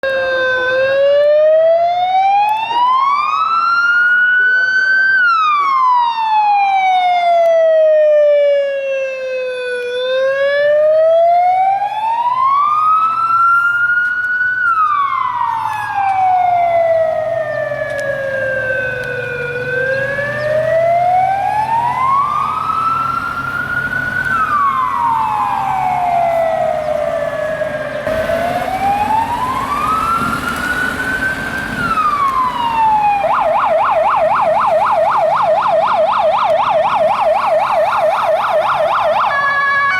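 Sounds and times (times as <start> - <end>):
fire engine siren wailing and yelping: 0.0 - 39.9
vehicle engine rumbling: 9.8 - 39.3.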